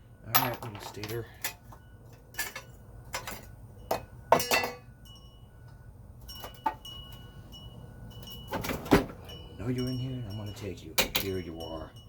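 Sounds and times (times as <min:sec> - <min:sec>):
metal tools clinking: 0:00.3 - 0:05.2, 0:08.1 - 0:12.0.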